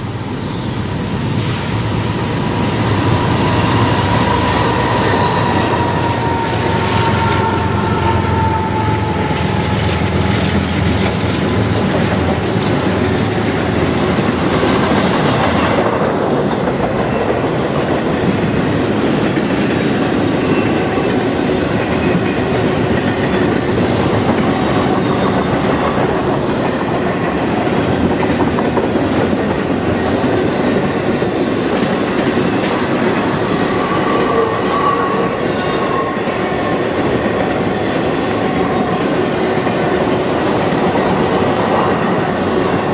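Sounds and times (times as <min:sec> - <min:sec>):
train wheels rumbling on rail: 0:00.0 - 0:42.9.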